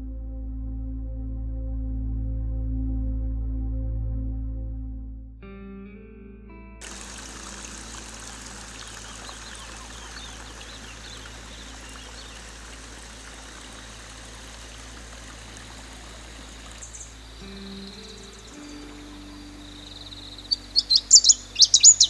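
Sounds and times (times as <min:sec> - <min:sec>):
faint high chirps: 0:06.8 - 0:22.0
running water rushing: 0:06.8 - 0:22.0.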